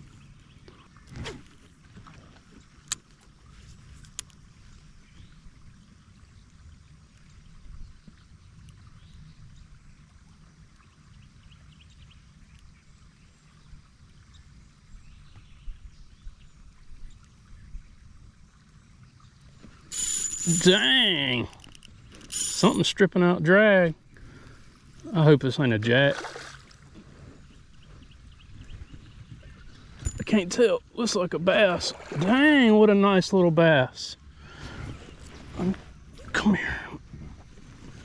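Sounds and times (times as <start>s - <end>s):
kayak hull rumble: 34.3s - 38.0s.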